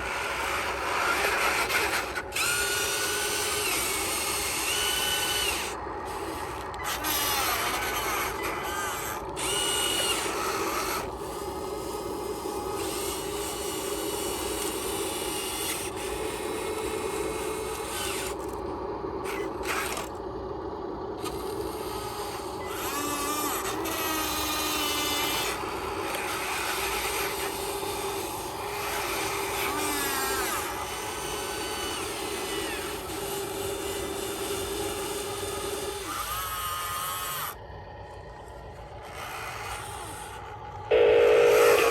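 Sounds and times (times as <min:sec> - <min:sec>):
small electric motors whining: 0:00.0 - 0:41.9.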